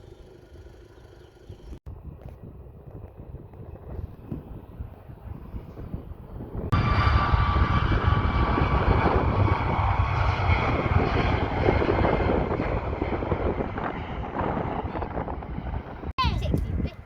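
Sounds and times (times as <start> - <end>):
airliner engines roaring: 0.0 - 17.0
high engine whine: 6.6 - 16.1.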